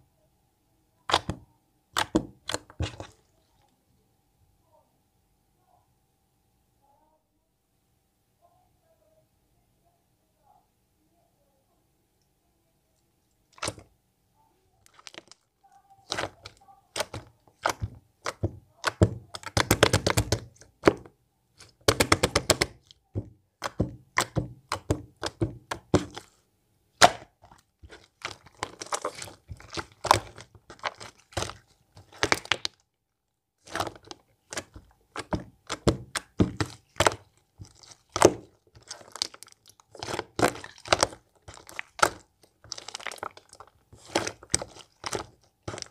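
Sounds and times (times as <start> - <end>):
slime clicking and popping: 1.1 - 1.4, 2.0 - 3.1, 13.6 - 13.8, 16.0 - 22.9, 23.6 - 26.3, 27.0 - 32.8, 33.6 - 45.9.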